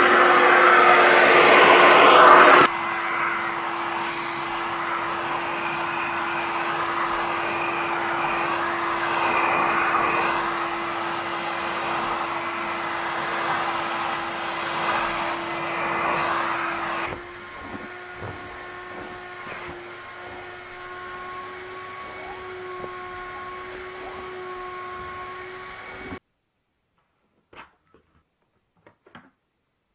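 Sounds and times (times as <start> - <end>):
suction air rushing: 0.0 - 17.2
vacuum cleaner running: 0.0 - 26.2.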